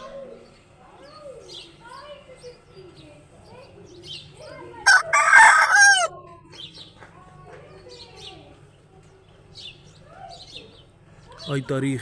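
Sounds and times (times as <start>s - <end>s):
small birds chirping: 0.0s - 12.0s
rooster crowing: 4.8s - 6.1s.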